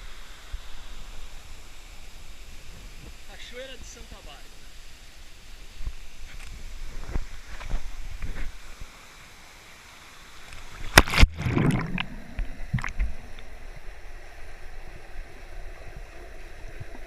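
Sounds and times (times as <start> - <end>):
water rushing: 0.0 - 17.0
water splashing: 10.4 - 14.1.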